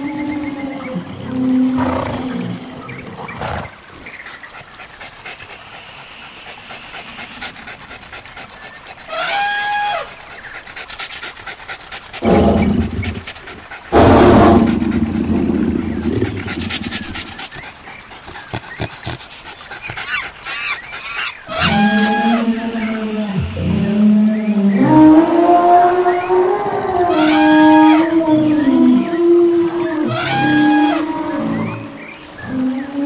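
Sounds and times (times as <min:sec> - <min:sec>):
cartoon animal roars: 0:12.2 - 0:13.3, 0:13.9 - 0:17.4.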